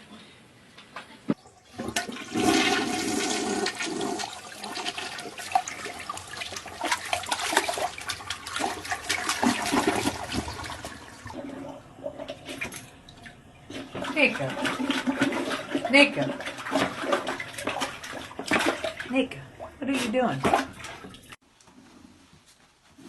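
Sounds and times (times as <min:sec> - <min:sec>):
toilet water rushing and gurgling: 0:01.4 - 0:19.8.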